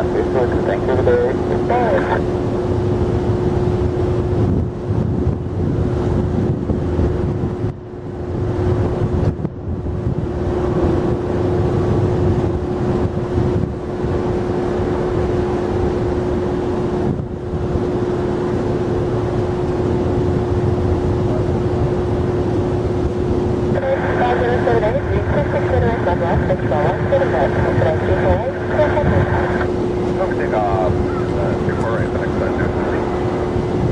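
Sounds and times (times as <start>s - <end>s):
constant steady tone: 0.0s - 4.4s, 17.6s - 33.9s
jet engines rumbling: 0.0s - 4.9s, 10.3s - 33.9s
wind buffeting microphone: 1.8s - 33.9s.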